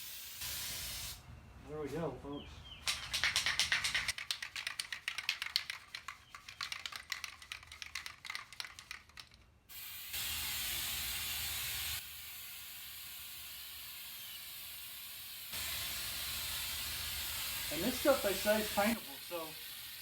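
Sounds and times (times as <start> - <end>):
aerosol spray hissing: 0.0 - 1.2, 9.7 - 20.0
aerosol can ball rattling: 2.8 - 9.6.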